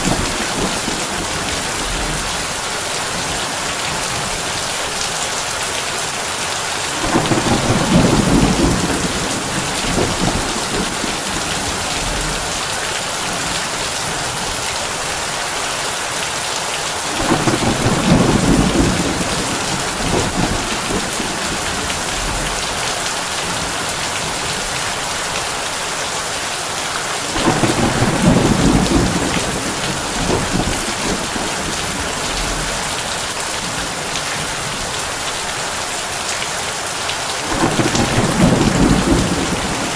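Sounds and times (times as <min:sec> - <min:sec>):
thunder rumbling: 0:00.0 - 0:04.5, 0:06.9 - 0:14.4, 0:17.1 - 0:24.8, 0:27.2 - 0:34.8, 0:37.4 - 0:39.9
heavy rain on a tin roof: 0:00.0 - 0:39.9.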